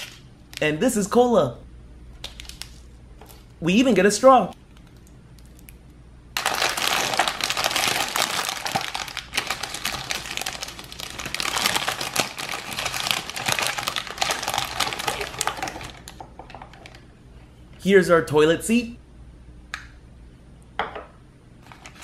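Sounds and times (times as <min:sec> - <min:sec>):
plastic bag crinkling: 0:00.0 - 0:00.6, 0:02.2 - 0:03.5, 0:06.4 - 0:17.0, 0:21.6 - 0:22.0.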